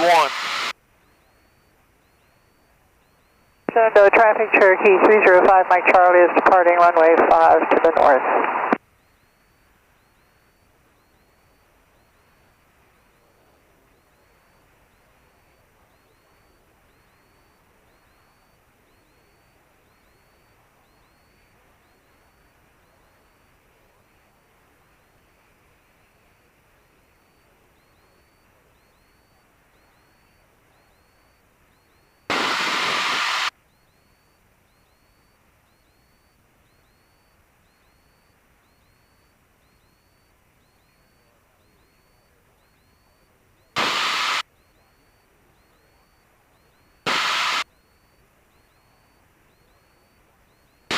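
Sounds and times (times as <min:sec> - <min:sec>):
loud burst of radio static: 0:00.0 - 0:00.7, 0:03.7 - 0:08.8, 0:27.2 - 0:34.3, 0:35.7 - 0:50.9
faint steady hiss: 0:00.0 - 0:50.9
faint high chirps: 0:00.9 - 0:07.1, 0:08.8 - 0:50.9.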